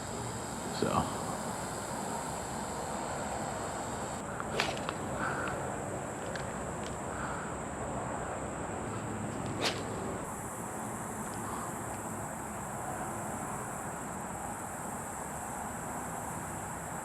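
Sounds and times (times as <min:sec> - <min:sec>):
high-pitched insect drone: 0:00.0 - 0:04.2.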